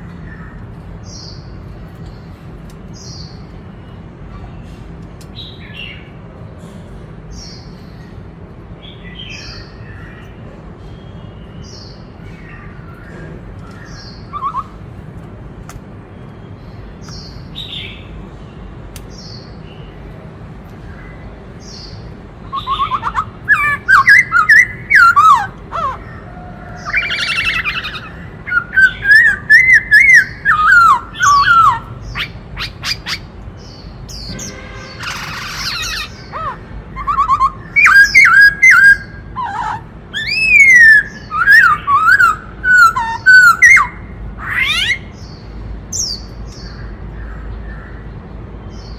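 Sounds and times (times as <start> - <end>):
bird singing whistled phrases: 14.0 - 14.8, 22.5 - 26.0, 26.8 - 33.2, 35.1 - 45.0.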